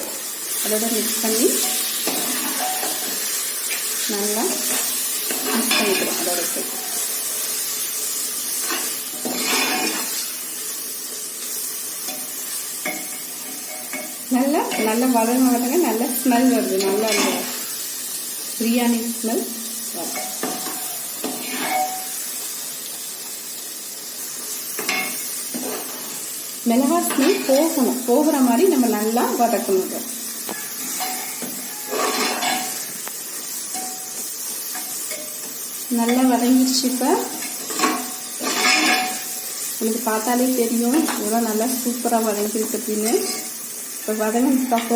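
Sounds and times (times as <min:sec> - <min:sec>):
food sizzling in a pot: 0:00.0 - 0:44.9
spoon scraping a pan: 0:01.5 - 0:10.4, 0:11.4 - 0:15.0, 0:16.6 - 0:17.8, 0:19.9 - 0:22.3, 0:24.6 - 0:26.3, 0:30.2 - 0:36.4, 0:37.3 - 0:39.8, 0:42.9 - 0:43.7
spoon stirring and scraping: 0:08.6 - 0:10.3, 0:20.1 - 0:22.1, 0:30.4 - 0:33.1, 0:37.4 - 0:39.2.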